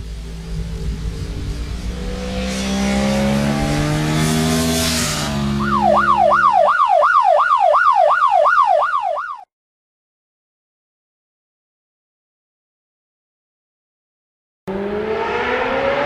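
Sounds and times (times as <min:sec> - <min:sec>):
vehicle engine with hiss: 0:00.0 - 0:04.7
yelp siren: 0:05.4 - 0:09.5.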